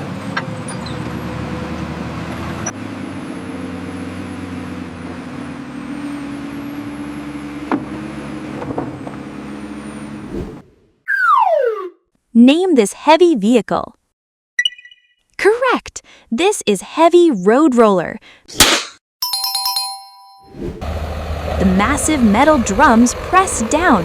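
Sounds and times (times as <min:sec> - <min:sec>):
diesel engine running: 0:20.8 - 0:24.0.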